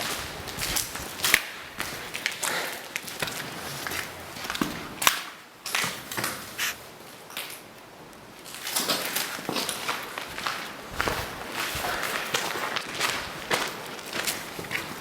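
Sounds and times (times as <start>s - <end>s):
footsteps crunching: 0.0s - 4.7s, 6.5s - 6.8s, 8.5s - 15.0s.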